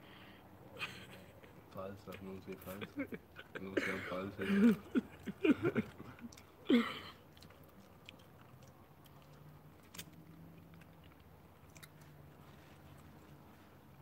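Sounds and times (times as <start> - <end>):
people chewing and licking fingers: 4.7 - 14.0.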